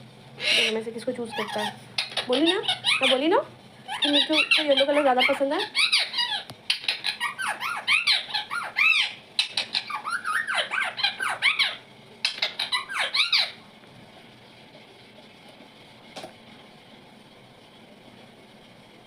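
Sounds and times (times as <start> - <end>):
parrot chattering squeaky calls: 0.4 - 3.3, 3.9 - 13.6.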